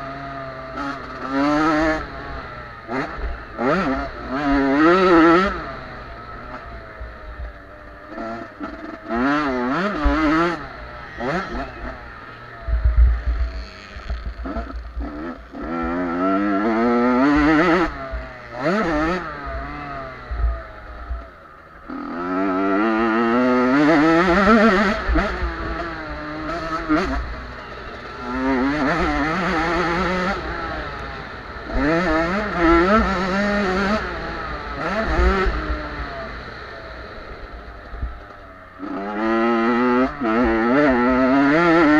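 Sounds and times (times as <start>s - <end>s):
motocross bikes revving: 0.0s - 41.9s.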